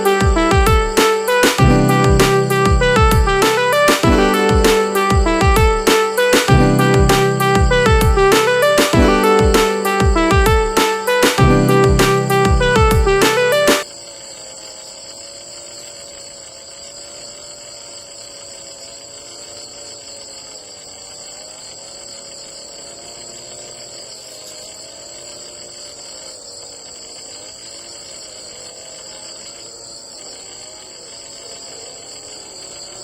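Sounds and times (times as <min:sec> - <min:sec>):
background music: 0:00.0 - 0:13.8
crickets trilling: 0:00.0 - 0:33.0.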